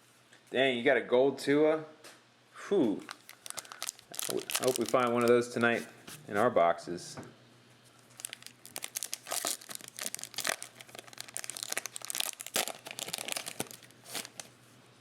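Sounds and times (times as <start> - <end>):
foil wrapper crinkling and tearing: 3.0 - 5.7, 8.0 - 14.6.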